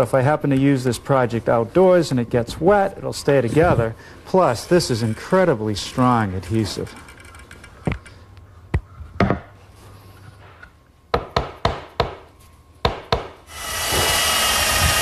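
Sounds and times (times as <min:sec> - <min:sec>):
power drill whining: 0:13.5 - 0:15.0.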